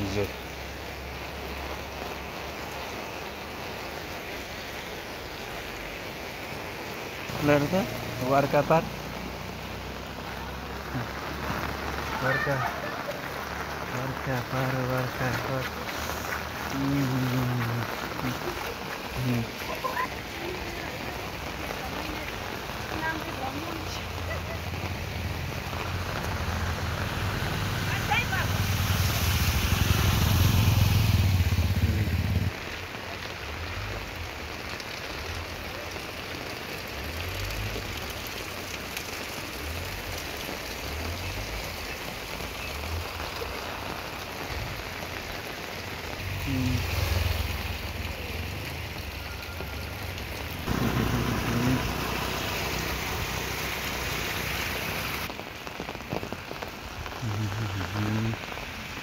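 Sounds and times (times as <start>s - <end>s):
motorcycle splashing through water: 0.0s - 59.0s
steady rain falling: 0.0s - 59.0s
motorcycle engine running: 50.7s - 52.4s.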